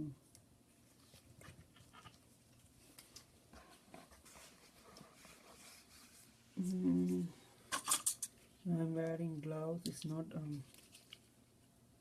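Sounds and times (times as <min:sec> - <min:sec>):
soft rustling: 0:00.7 - 0:07.5, 0:10.0 - 0:11.4.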